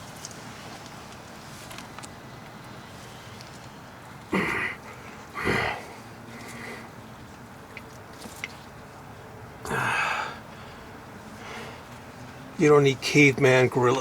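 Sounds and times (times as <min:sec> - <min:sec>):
man grunting with effort: 0:04.3 - 0:04.8, 0:05.4 - 0:05.9, 0:09.6 - 0:10.4.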